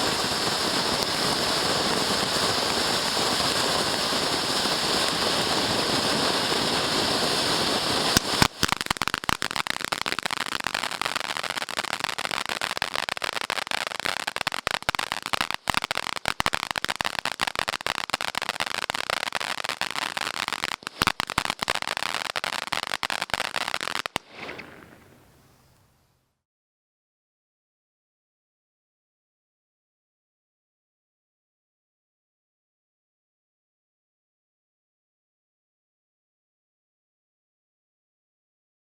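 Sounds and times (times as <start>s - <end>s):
rapid firework crackling: 0.0s - 25.8s
firework fountain hissing: 0.0s - 26.0s.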